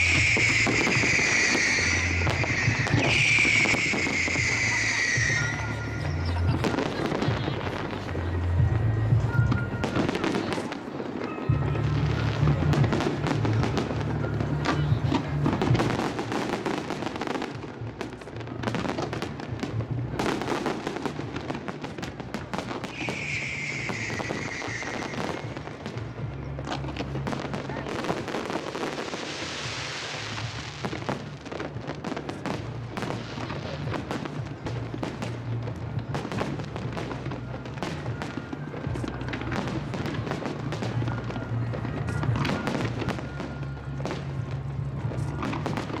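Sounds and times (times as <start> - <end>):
music playing: 0.0 - 28.0.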